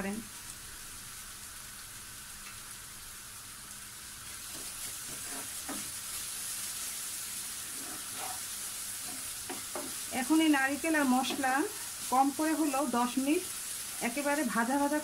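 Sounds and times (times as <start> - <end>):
paste sizzling in oil: 0.3 - 15.0
wooden spatula stirring and scraping: 4.4 - 12.8.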